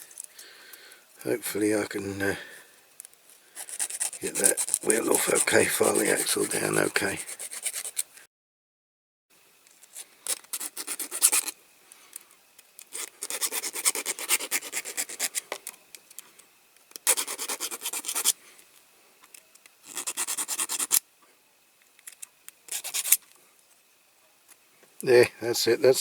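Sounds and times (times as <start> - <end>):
hand file rasping metal: 3.6 - 8.1, 13.0 - 15.4, 17.1 - 18.3, 19.9 - 21.0, 22.7 - 23.2.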